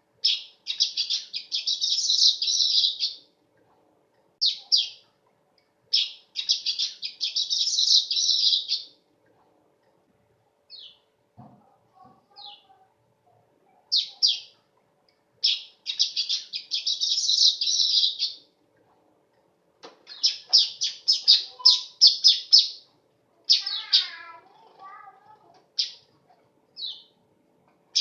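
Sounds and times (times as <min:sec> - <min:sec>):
weaver bird chirping: 0:00.2 - 0:03.2, 0:04.4 - 0:05.0, 0:05.9 - 0:09.0, 0:10.7 - 0:11.1, 0:13.9 - 0:14.6, 0:15.4 - 0:18.5, 0:20.0 - 0:22.9, 0:23.5 - 0:24.2, 0:25.7 - 0:26.1, 0:26.8 - 0:27.2.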